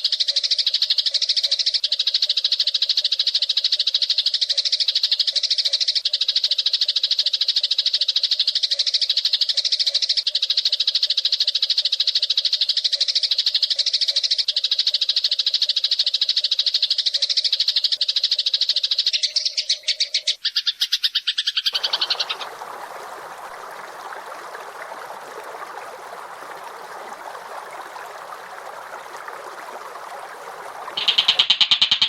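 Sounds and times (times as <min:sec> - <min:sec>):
high rattling bird trill: 0:31.0 - 0:32.0.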